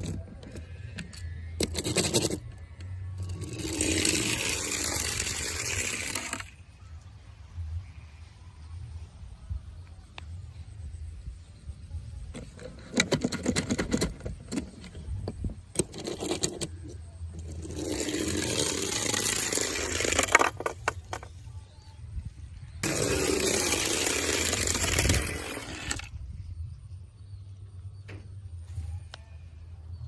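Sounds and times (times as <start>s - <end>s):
toy cars clicking and clattering: 0.0s - 2.6s, 3.2s - 6.6s, 12.3s - 21.5s, 22.8s - 26.1s
steady scraping: 0.0s - 6.6s, 12.3s - 21.6s, 22.6s - 26.1s.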